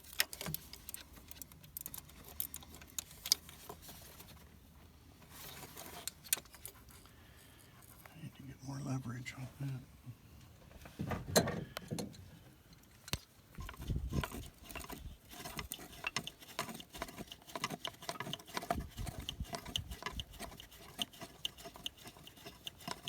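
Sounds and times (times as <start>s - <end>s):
tools clicking and scraping: 0.0s - 4.3s, 5.4s - 8.1s, 11.8s - 23.0s.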